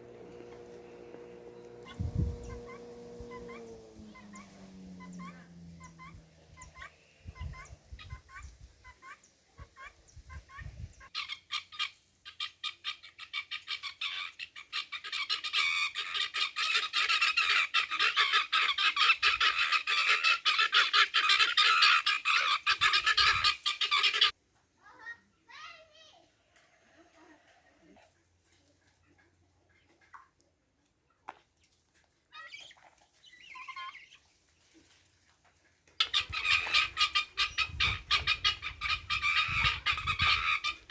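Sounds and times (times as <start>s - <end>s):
guinea fowl calling: 1.6s - 24.3s, 36.0s - 40.9s.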